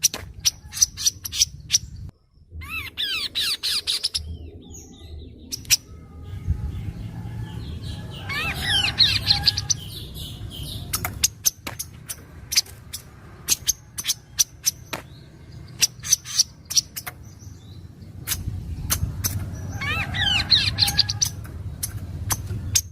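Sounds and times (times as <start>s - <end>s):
falling chirping bird notes: 0.0s - 22.9s
low hum: 1.1s - 8.3s.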